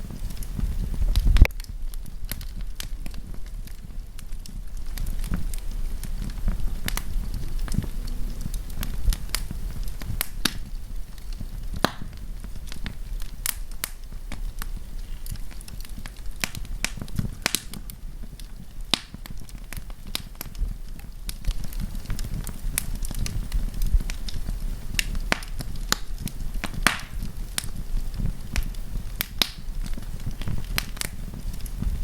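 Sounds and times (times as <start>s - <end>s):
campfire crackling and popping: 0.0s - 32.0s
low rumble of flames: 0.0s - 32.0s.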